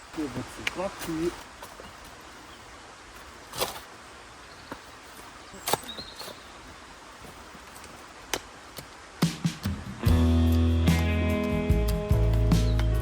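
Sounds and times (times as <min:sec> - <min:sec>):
faint steady hiss: 0:00.0 - 0:13.0
stones knocking together: 0:04.6 - 0:09.0.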